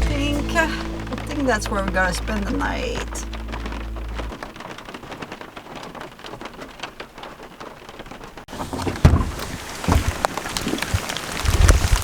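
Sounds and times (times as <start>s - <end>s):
dull low thumps: 0.0s - 4.9s
heavy rain: 0.0s - 12.0s.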